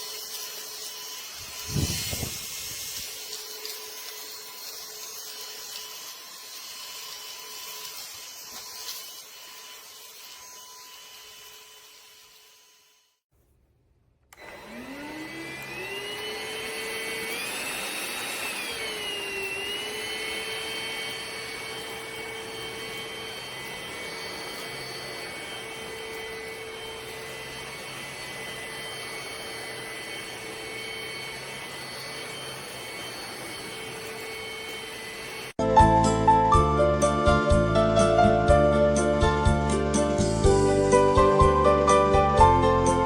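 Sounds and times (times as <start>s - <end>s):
vacuum motor whining: 0.0s - 13.1s, 14.3s - 35.6s.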